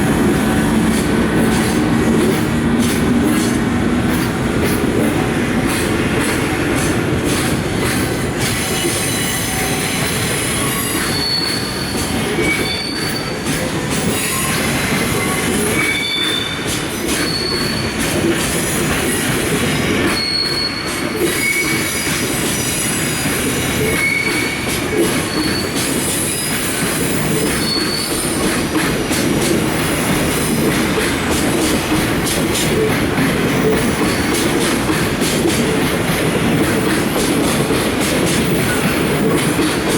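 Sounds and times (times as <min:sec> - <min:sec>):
train rail rumble: 0:00.0 - 0:39.9
wheel squeals: 0:08.4 - 0:28.8.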